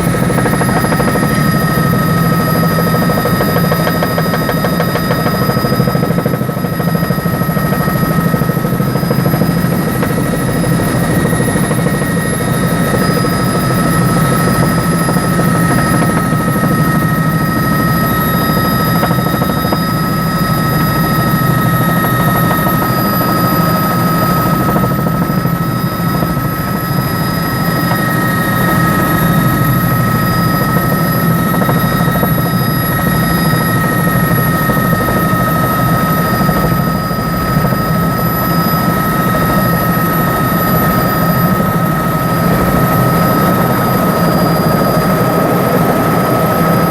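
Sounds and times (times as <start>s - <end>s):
helicopter engine and rotor rumble: 0.0s - 46.9s
high whine: 0.0s - 46.9s.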